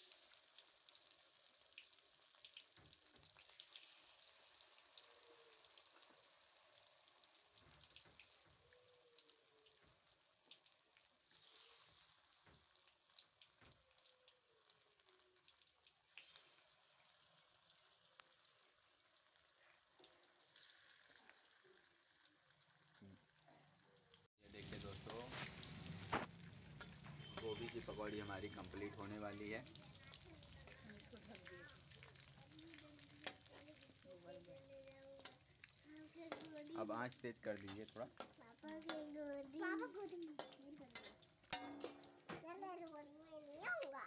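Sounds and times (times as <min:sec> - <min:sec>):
quiet sizzle with crackles: 0:00.0 - 0:44.0.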